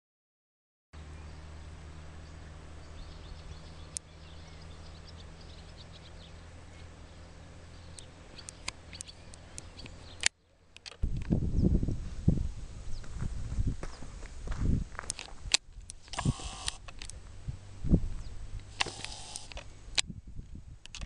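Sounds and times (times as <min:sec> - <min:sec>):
small birds chirping: 0:01.0 - 0:11.8, 0:15.8 - 0:19.9
steady low hum: 0:01.0 - 0:20.9
sharp clicks: 0:07.9 - 0:11.3, 0:15.1 - 0:17.2, 0:18.6 - 0:20.1.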